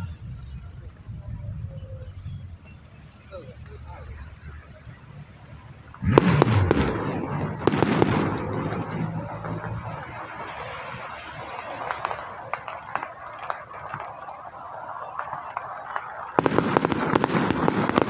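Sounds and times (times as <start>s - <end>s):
firecracker string crackling: 0.0s - 18.0s
firecracker cracks: 5.7s - 18.0s.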